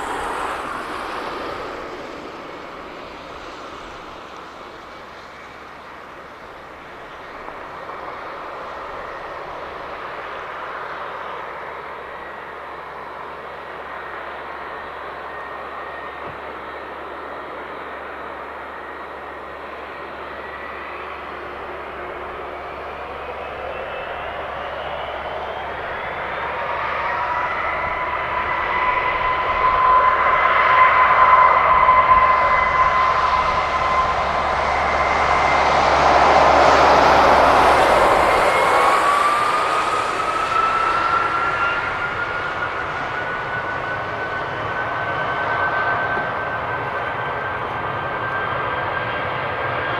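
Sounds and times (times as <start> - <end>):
jet engine whine: 0.0 - 49.9
jet engines roaring: 0.0 - 49.9.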